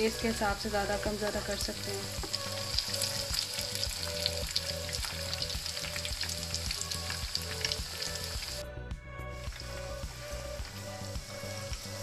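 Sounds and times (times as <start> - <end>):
chicken wings deep-frying in oil: 0.0 - 8.6, 10.6 - 12.0.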